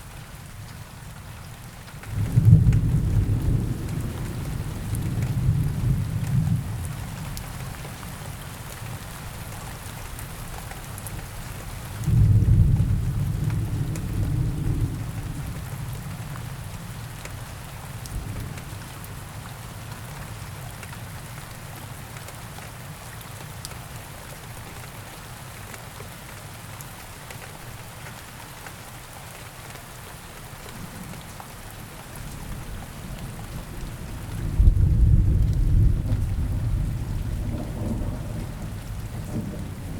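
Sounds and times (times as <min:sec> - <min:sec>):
steady rain falling: 0:00.0 - 0:39.9
thunder rumble: 0:33.5 - 0:39.9.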